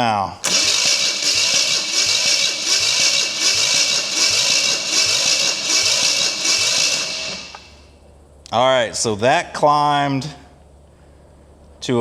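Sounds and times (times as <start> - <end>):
starter motor cranking engine: 0.4 - 7.9.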